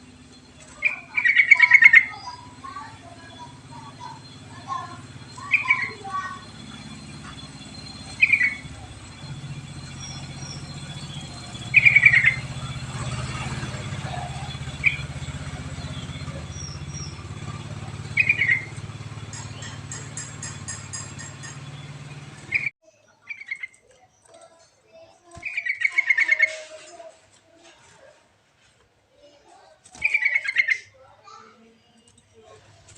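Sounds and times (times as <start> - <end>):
steady low hum: 0.0 - 22.7
bulbul song phrases: 0.1 - 22.7.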